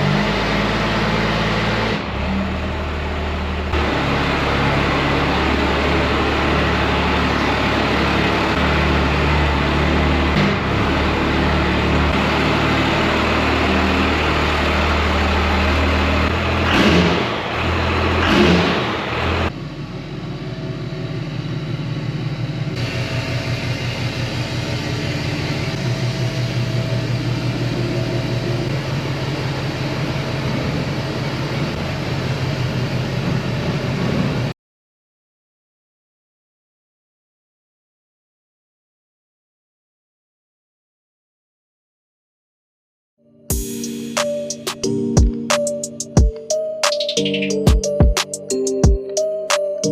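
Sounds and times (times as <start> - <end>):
pickup truck engine running: 0.0 - 34.5.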